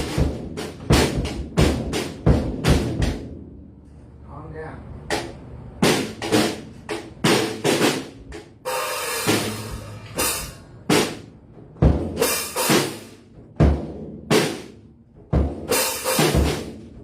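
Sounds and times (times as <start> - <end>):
snare and tom hits: 0.0 - 3.4, 5.1 - 16.8
cymbal crash: 8.7 - 11.2
bass drum kicks: 10.9 - 12.2, 13.4 - 14.6, 15.2 - 16.8.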